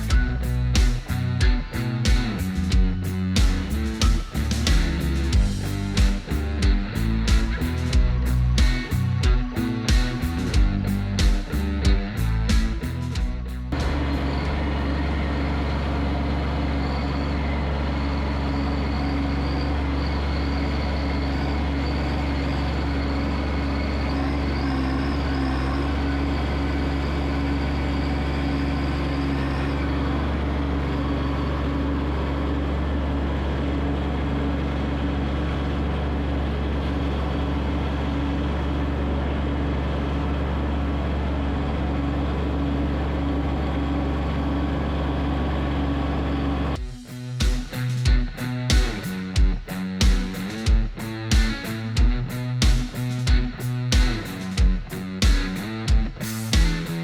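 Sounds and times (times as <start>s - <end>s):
tractor diesel engine running: 0.0s - 57.0s
faint high whine: 13.8s - 33.2s.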